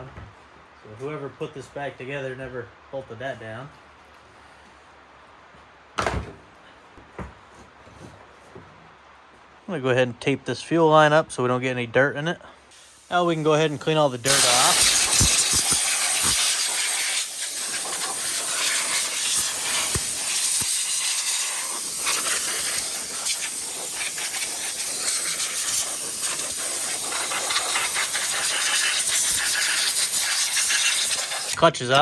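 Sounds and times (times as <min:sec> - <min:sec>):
air blow gun hissing: 0:12.7 - 0:31.8.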